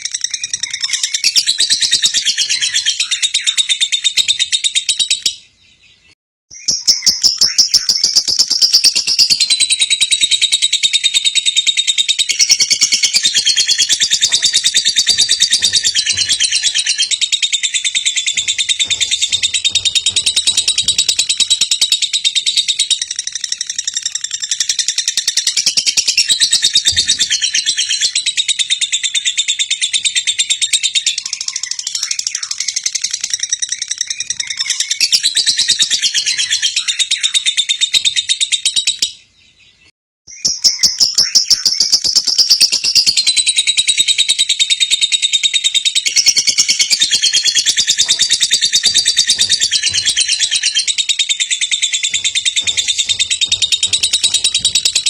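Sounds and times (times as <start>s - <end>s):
bird high chirps: 0.0s - 55.0s.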